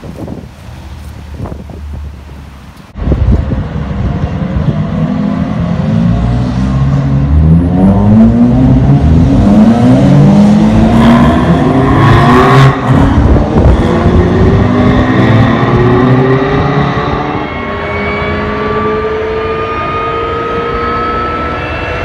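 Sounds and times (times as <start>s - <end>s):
sports car engines accelerating: 2.9s - 22.0s.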